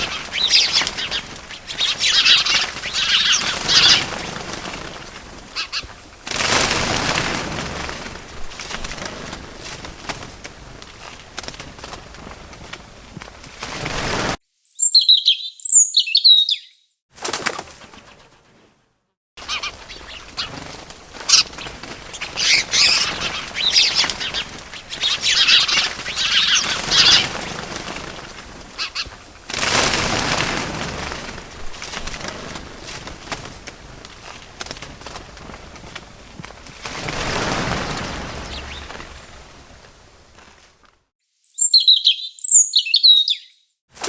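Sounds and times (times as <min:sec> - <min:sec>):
small birds chirping: 0:00.0 - 0:06.2, 0:14.5 - 0:17.0, 0:19.4 - 0:29.4, 0:37.4 - 0:39.5, 0:41.3 - 0:43.8
wings flapping and rustling: 0:00.0 - 0:14.4, 0:17.1 - 0:18.8, 0:19.4 - 0:41.1.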